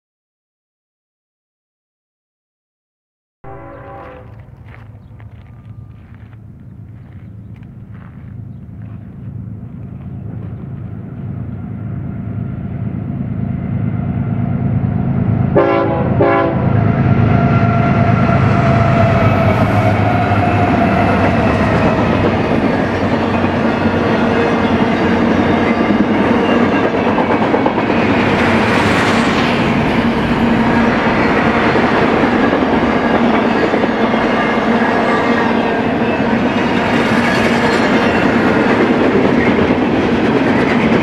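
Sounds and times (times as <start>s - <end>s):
train horn blasts: 3.4s - 4.7s, 15.5s - 21.4s
diesel locomotive engine rumble: 3.5s - 41.0s
train wheels clattering on rails: 18.9s - 41.0s.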